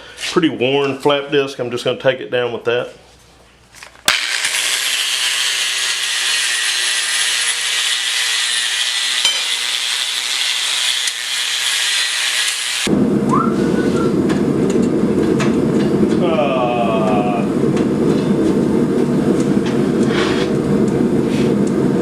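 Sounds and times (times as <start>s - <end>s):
angle grinder whining: 4.1s - 12.9s
low rumbling noise: 12.9s - 22.0s.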